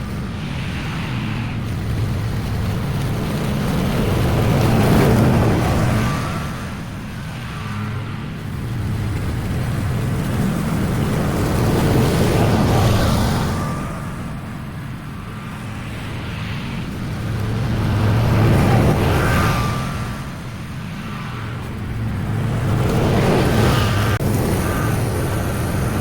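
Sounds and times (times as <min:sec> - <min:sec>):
lawn mower engine running: 0:08.4 - 0:13.6, 0:21.4 - 0:26.0.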